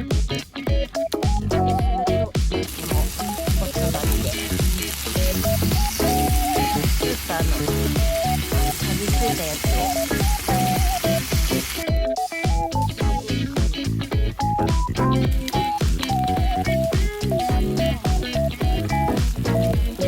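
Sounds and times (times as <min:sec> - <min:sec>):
background music with beat: 0:00.0 - 0:20.0
food sizzling in a pan: 0:02.6 - 0:11.9.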